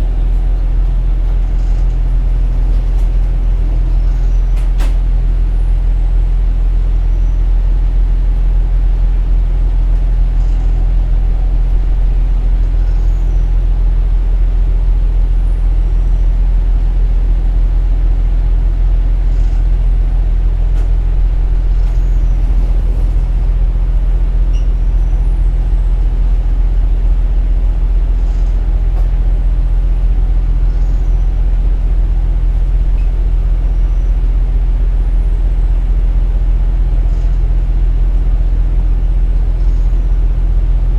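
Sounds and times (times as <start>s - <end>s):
train rolling noise: 0.0s - 5.6s, 18.3s - 37.4s
diesel railcar engine drone: 0.0s - 40.9s.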